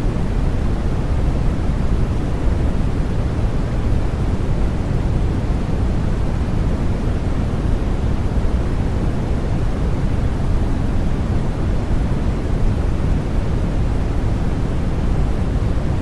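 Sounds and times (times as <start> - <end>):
steady white noise hiss: 0.0 - 16.0.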